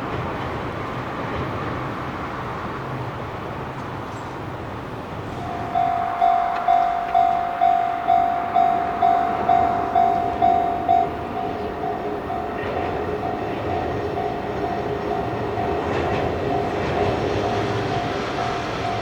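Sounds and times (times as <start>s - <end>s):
passing train rumble: 0.0s - 19.0s
level crossing bell ringing: 5.3s - 19.0s.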